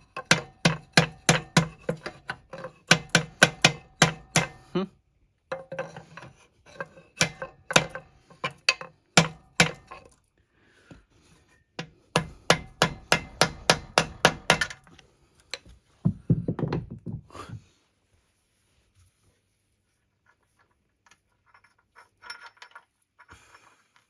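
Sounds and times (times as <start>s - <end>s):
hand tool knocking: 0.2s - 4.7s, 11.8s - 14.8s, 16.0s - 17.2s.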